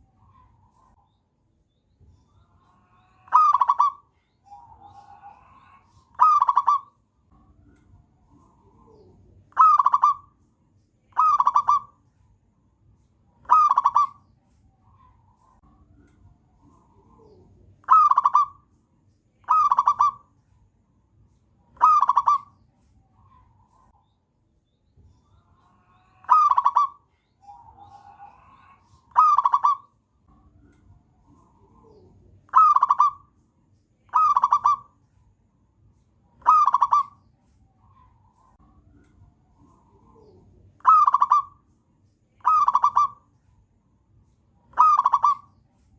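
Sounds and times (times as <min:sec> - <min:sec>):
dove cooing: 0:03.3 - 0:05.6, 0:06.2 - 0:06.9, 0:08.3 - 0:10.3, 0:11.2 - 0:11.9, 0:13.5 - 0:14.2, 0:16.7 - 0:18.6, 0:19.5 - 0:20.2, 0:21.8 - 0:22.5, 0:26.2 - 0:29.9, 0:31.3 - 0:33.3, 0:34.1 - 0:34.9, 0:36.4 - 0:37.2, 0:39.6 - 0:41.6, 0:42.4 - 0:43.2, 0:44.7 - 0:45.5.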